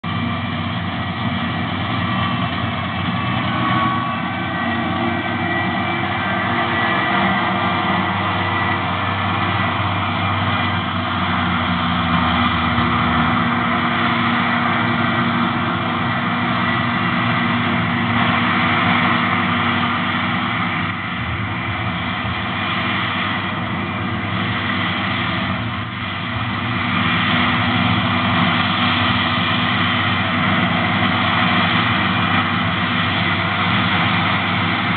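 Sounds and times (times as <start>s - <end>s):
diesel engine droning: 0.0s - 34.9s.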